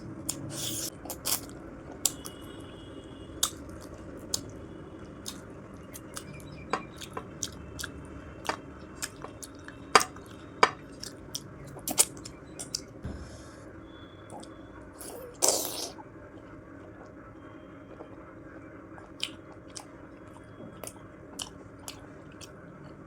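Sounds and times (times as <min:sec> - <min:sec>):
chewing with wet mouth clicks: 0:03.4 - 0:04.6, 0:05.2 - 0:12.9, 0:19.0 - 0:22.6.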